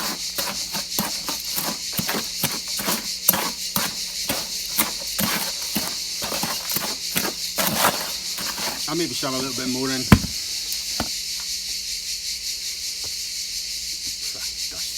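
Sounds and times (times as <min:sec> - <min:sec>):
hand tool scraping cement mix: 0:00.0 - 0:11.1.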